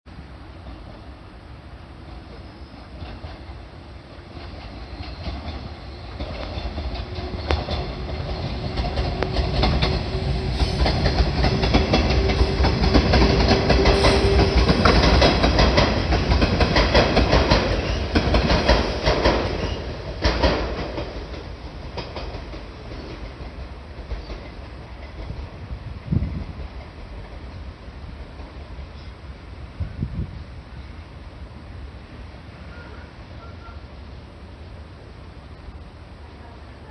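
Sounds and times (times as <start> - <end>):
electric train passing: 0.1 - 36.9
wheels clacking over rail joints: 2.0 - 29.0.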